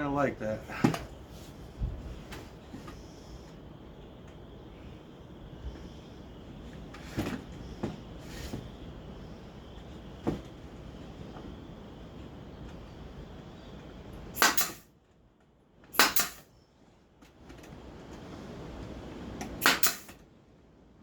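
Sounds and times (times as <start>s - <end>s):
nail gun shots: 14.4s - 14.9s, 15.9s - 16.5s, 19.6s - 20.2s.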